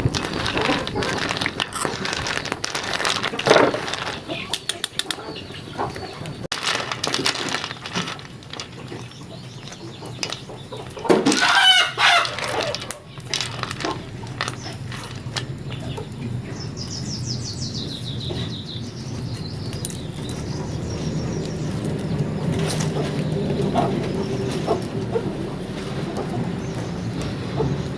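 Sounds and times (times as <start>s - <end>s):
chickens clucking: 0.2s - 2.6s, 3.2s - 6.5s, 7.4s - 27.9s
rooster crowing: 11.4s - 12.6s.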